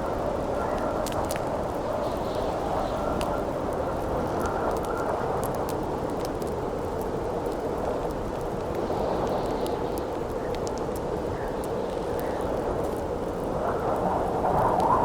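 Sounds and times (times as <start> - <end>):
campfire crackling and popping: 0.1 - 15.0
wind howling: 11.2 - 15.0.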